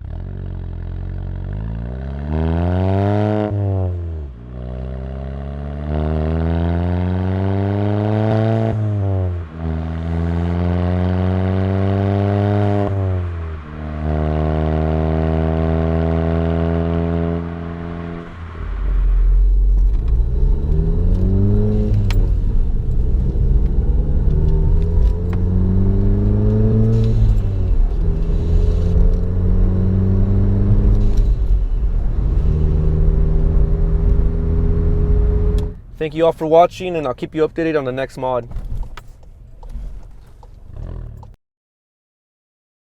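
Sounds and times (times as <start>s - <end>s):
car engine accelerating: 0.0s - 37.8s, 38.6s - 41.4s
deep exhaust rumble: 8.0s - 37.8s.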